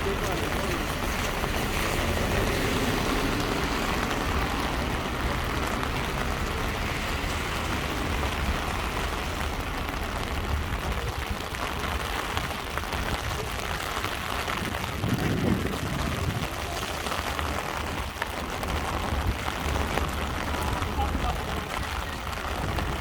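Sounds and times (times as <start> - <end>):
heavy rain on street: 0.0 - 23.0.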